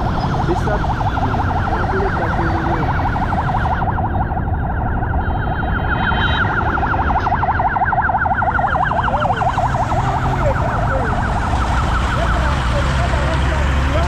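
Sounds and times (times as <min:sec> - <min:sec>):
motorcycle and street traffic: 0:00.0 - 0:14.0
siren yelping: 0:00.0 - 0:14.0.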